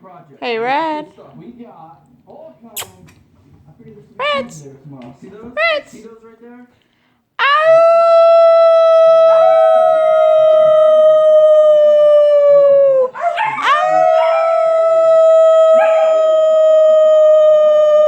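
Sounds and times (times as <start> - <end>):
puppy howling: 7.4 - 18.0.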